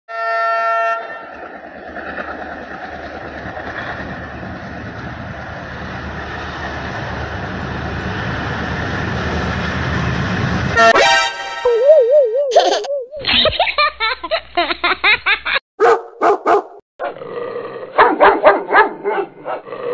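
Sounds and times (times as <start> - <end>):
locomotive horn blast: 0.1 - 1.2, 10.7 - 11.7
train engine and wheels rumbling: 0.3 - 10.8.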